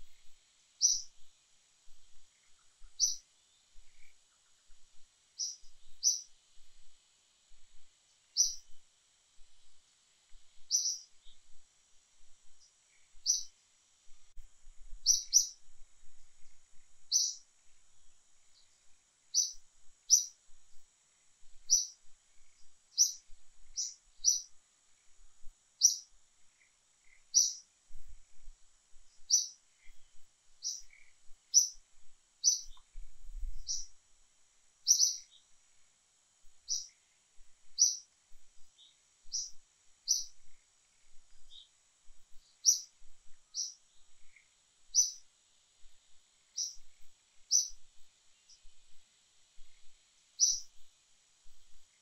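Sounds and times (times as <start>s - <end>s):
bird chirping sharply: 13.2s - 13.5s, 50.4s - 50.6s.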